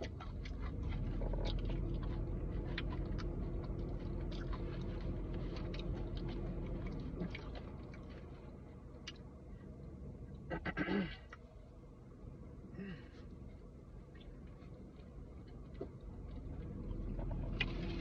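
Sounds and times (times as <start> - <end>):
chewing food: 0.0 - 9.4, 14.0 - 18.0.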